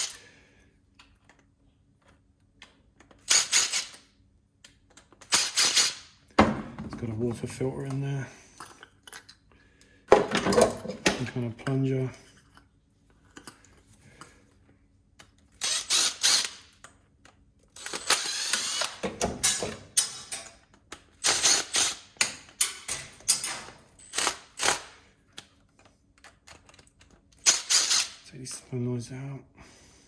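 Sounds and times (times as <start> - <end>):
metal parts clicking and rattling: 17.7 - 28.1.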